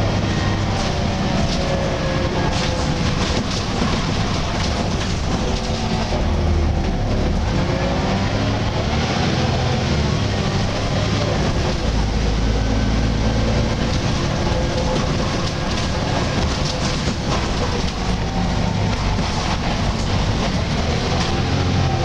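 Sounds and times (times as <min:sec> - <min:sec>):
bus diesel engine drone: 0:00.0 - 0:22.0
light rattles and clicks: 0:00.6 - 0:06.2, 0:13.7 - 0:21.5.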